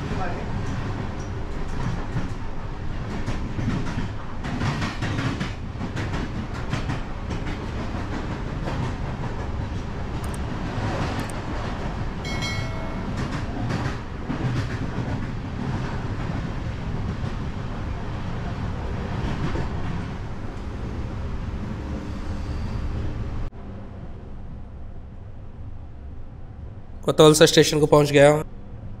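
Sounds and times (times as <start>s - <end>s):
train rumbling on rails: 0.0s - 27.6s
short high-pitched tone: 12.3s - 13.2s.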